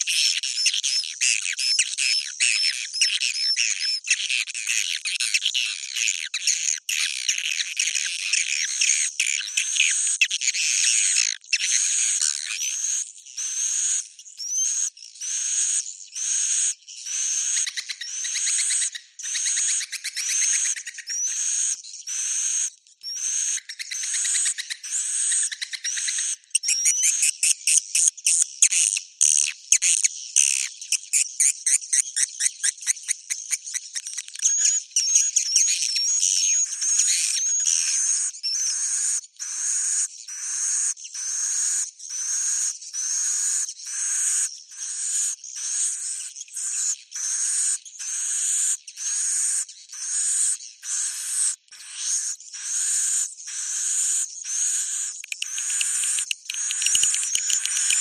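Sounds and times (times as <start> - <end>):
swiftlet twittering chirps: 46.0 - 58.0
clicking rattling twitters: 55.3 - 58.0.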